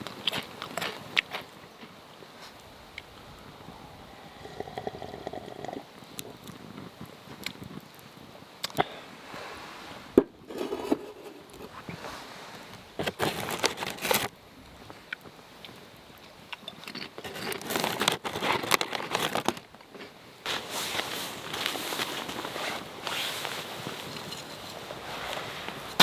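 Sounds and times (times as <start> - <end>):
crinkling and rustling: 9.3 - 15.3, 16.6 - 26.0.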